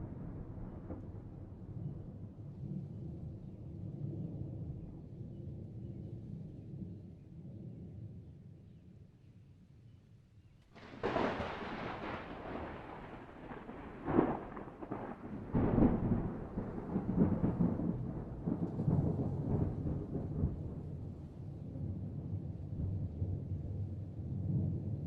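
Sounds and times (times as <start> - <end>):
thunder clap and rumble: 0.0 - 3.4, 10.8 - 25.0.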